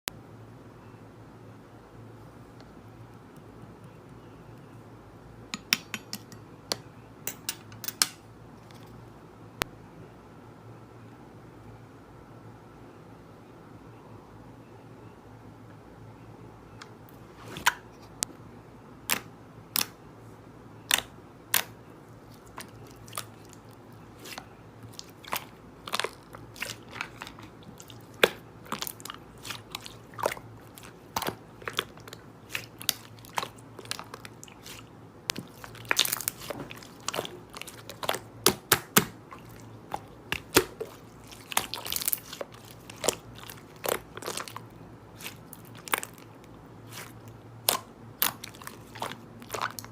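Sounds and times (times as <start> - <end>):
crunchy food being chewed: 20.9 - 49.9.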